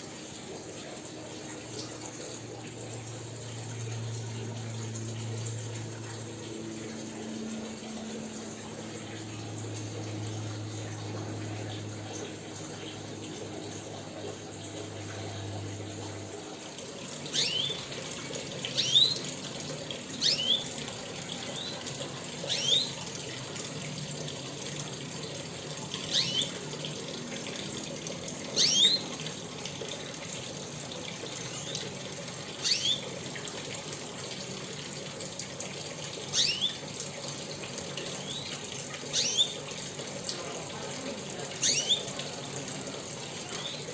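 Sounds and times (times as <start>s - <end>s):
rushing noise like running water: 0.0s - 43.9s
pet bird chirping: 17.3s - 17.9s, 18.7s - 19.2s, 20.2s - 20.8s, 22.5s - 23.0s, 26.0s - 26.6s, 28.6s - 29.1s, 32.6s - 33.0s, 36.4s - 36.8s, 39.1s - 39.6s, 41.6s - 42.1s.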